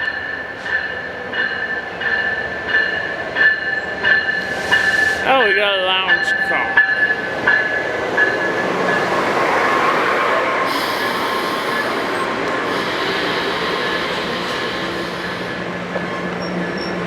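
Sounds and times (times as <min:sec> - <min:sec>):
train wheels rumbling on rail: 0:00.0 - 0:17.0
high wheel squeal: 0:04.0 - 0:05.5, 0:10.0 - 0:17.0.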